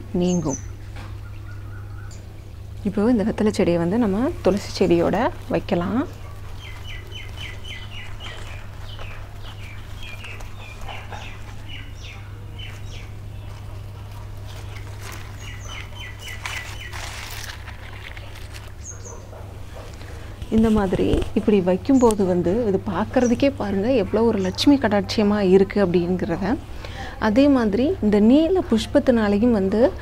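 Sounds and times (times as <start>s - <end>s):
steady low hum: 0.0s - 30.0s
small bird chirping: 6.1s - 19.3s.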